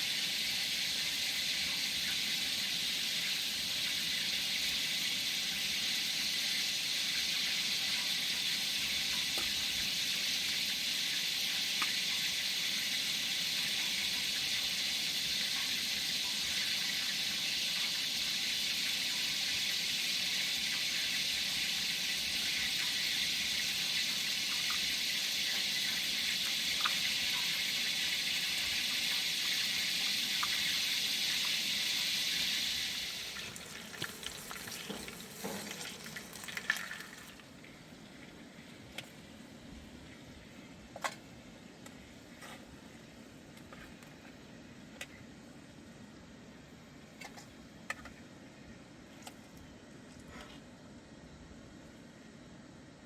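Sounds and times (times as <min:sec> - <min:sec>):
water running: 0:00.0 - 0:39.2.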